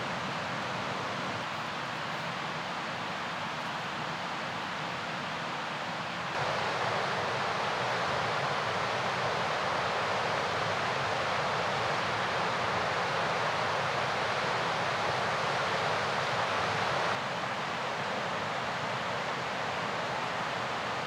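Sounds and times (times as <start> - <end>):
river rushing: 6.4 - 17.6.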